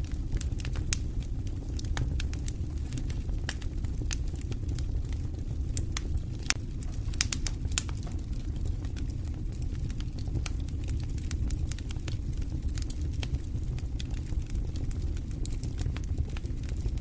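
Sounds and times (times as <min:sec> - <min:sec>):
flames rushing: 0:00.0 - 0:17.0
wood fire crackling and popping: 0:00.0 - 0:17.0.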